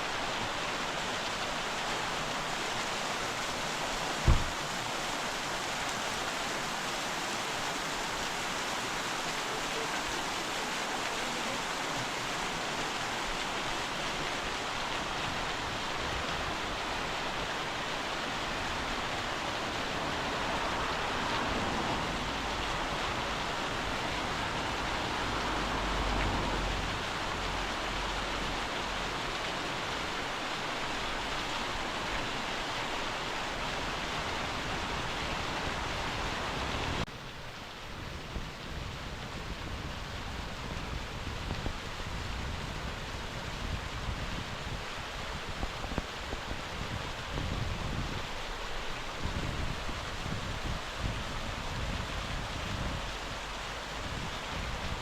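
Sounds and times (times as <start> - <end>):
waterfall rushing: 0.0 - 38.0, 40.0 - 55.0.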